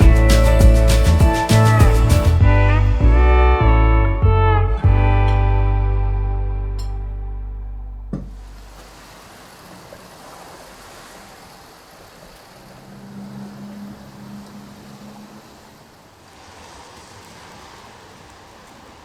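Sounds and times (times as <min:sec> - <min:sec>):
rain falling: 0:00.0 - 0:03.6, 0:08.2 - 0:19.0
background music: 0:00.0 - 0:08.1
low hum: 0:00.0 - 0:09.1.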